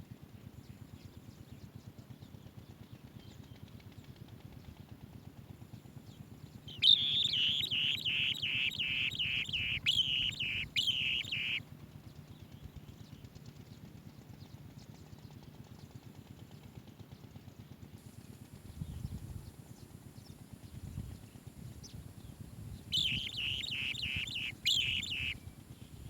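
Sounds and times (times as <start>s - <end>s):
bird chirping rapidly: 6.7s - 11.6s, 22.9s - 25.4s
faint background noise: 6.7s - 11.6s, 19.0s - 26.0s.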